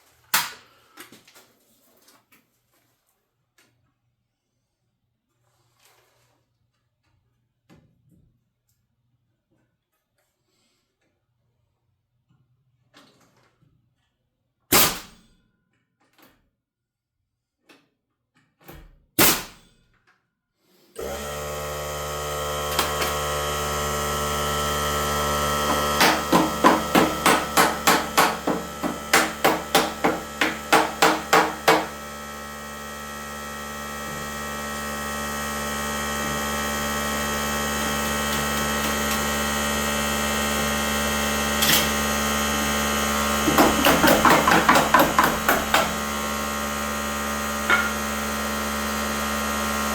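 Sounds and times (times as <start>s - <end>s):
motor running: 21.0s - 49.9s
hammer striking wood framing: 25.4s - 32.1s, 43.4s - 46.4s, 47.7s - 48.3s.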